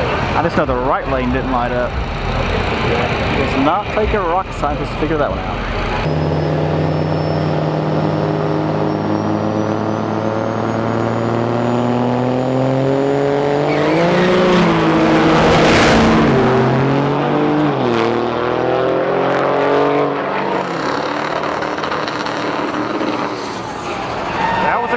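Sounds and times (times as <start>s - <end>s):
high whine: 0.0s - 11.4s
racing engine revving: 0.0s - 24.9s.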